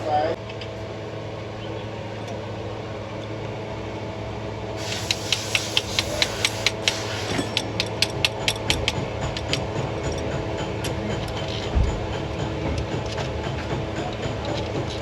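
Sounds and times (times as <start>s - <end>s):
ratchet wrench clicking: 4.8s - 9.6s.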